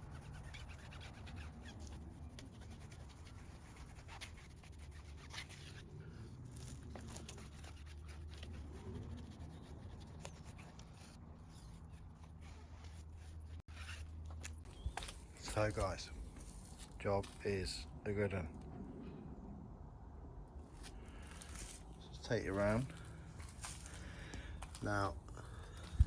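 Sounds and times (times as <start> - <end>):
hand wiping car surfaces: 0.0 - 17.5.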